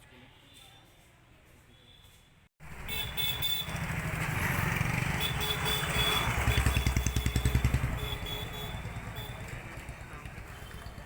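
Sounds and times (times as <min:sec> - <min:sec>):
motorcycle engine running: 0:03.5 - 0:11.0.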